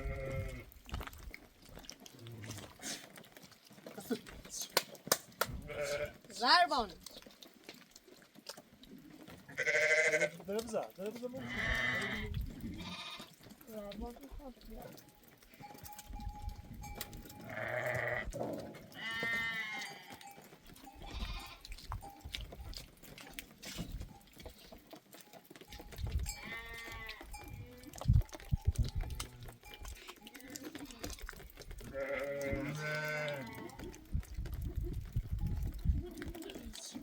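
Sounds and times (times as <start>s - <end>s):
sheep and goats bleating: 0.0s - 0.8s, 5.6s - 7.0s, 9.3s - 14.2s, 14.9s - 34.9s.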